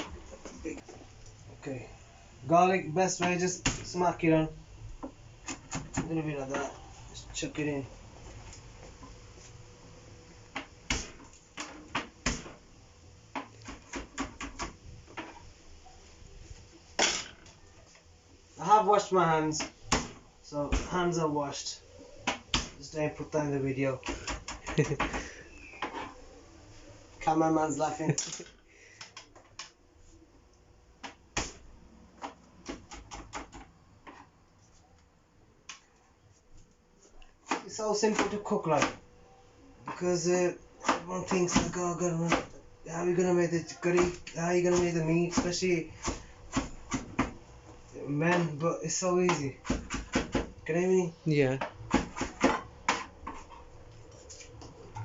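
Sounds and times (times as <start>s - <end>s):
kitchen prep knocks and clacks: 49.2s - 50.5s.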